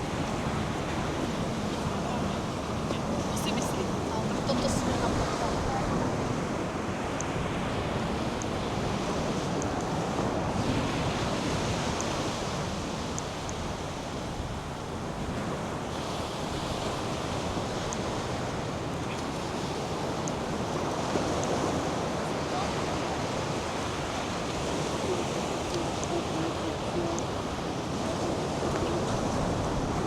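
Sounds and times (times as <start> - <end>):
surf breaking on beach: 0.0 - 30.0
wind buffeting microphone: 0.0 - 30.0.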